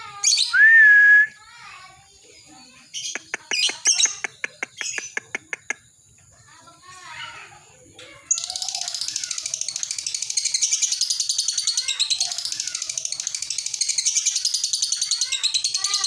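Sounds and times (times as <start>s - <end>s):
lovebird rapid high chirping: 2.4s - 6.0s, 8.3s - 16.0s.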